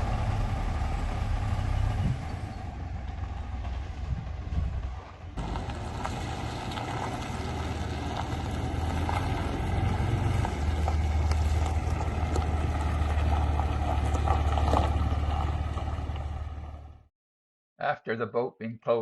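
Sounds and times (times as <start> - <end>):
heavy engine drone: 0.0 - 17.0
wind on microphone: 1.1 - 2.7.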